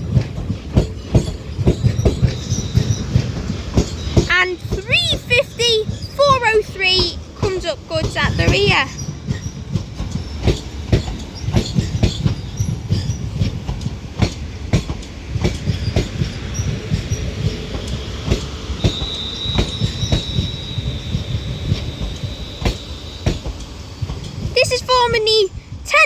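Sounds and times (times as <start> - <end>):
train wheels clacking over rail joints: 0.0 - 25.5
low train rumble: 0.0 - 26.0
high wheel squeal: 1.0 - 7.1, 8.1 - 13.4, 15.7 - 25.1.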